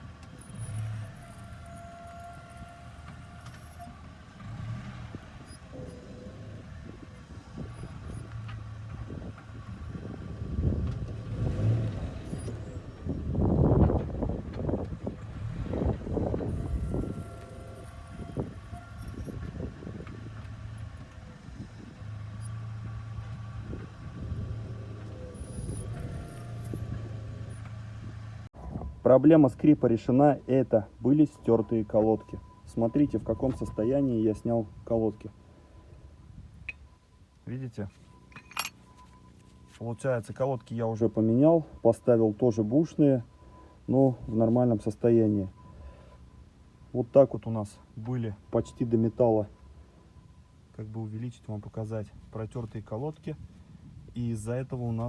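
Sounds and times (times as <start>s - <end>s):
car engine low rumble: 0.0s - 55.0s
faint high squeal: 0.3s - 4.0s, 4.6s - 8.5s, 12.0s - 13.4s, 16.2s - 21.6s, 23.6s - 27.8s.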